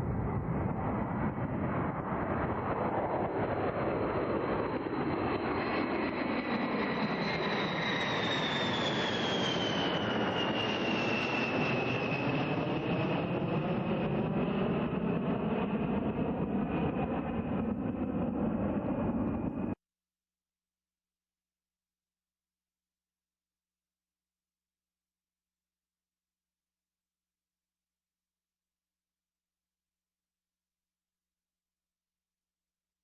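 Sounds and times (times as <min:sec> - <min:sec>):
jet bomber passing: 0:00.0 - 0:19.8
high jet whine: 0:06.8 - 0:13.5.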